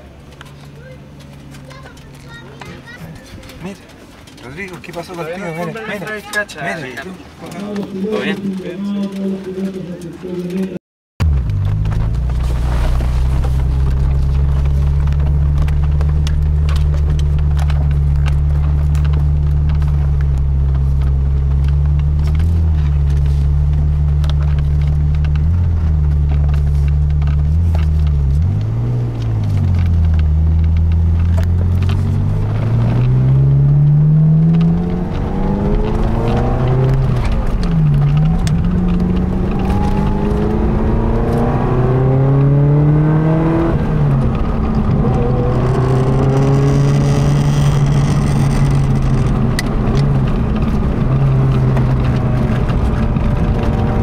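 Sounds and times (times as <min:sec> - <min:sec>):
car engine revving: 0:11.2 - 0:54.0.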